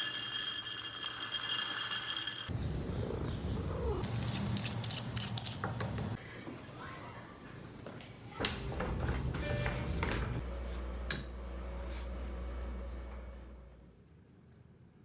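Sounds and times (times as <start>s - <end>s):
cat purring: 2.8s - 4.0s.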